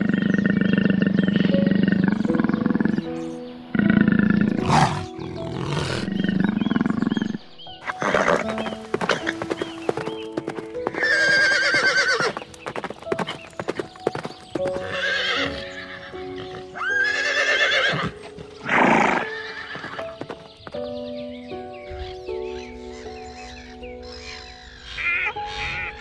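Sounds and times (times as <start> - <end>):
soft background music: 0.0 - 26.0
horse neighing: 3.8 - 10.2, 10.8 - 12.5, 13.1 - 20.5
horse blowing breath: 7.8 - 16.7
hooves clip-clopping: 7.8 - 21.0.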